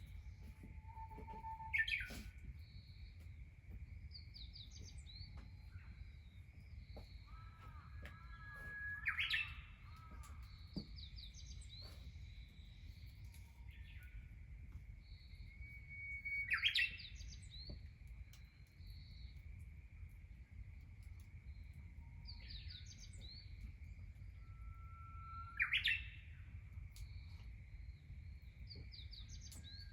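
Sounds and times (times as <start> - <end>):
wild birds singing: 0.0 - 19.6, 21.3 - 29.9.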